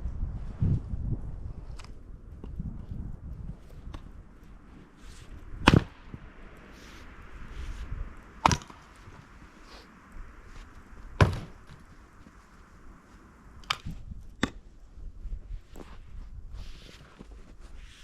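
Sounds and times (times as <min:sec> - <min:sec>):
axe striking wood: 0:05.6 - 0:05.9, 0:08.4 - 0:08.7.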